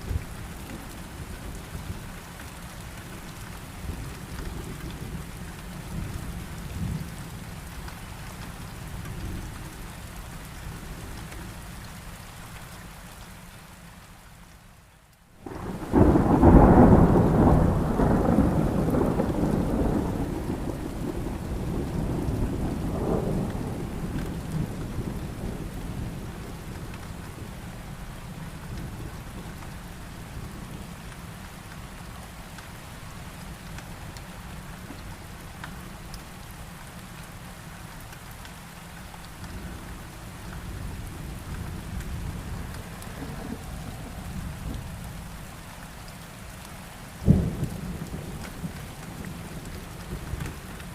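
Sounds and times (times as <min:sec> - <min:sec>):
heavy rain: 0:00.0 - 0:50.9
thunder rumbling: 0:15.4 - 0:29.7, 0:39.6 - 0:45.5, 0:47.2 - 0:50.9.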